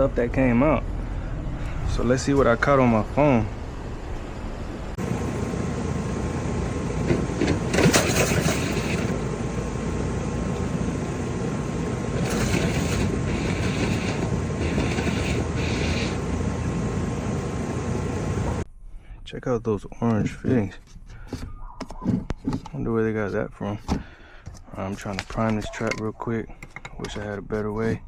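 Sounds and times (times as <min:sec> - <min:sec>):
steady mechanical running noise: 0:00.0 - 0:18.7
hissing bursts of blown air: 0:10.7 - 0:18.6.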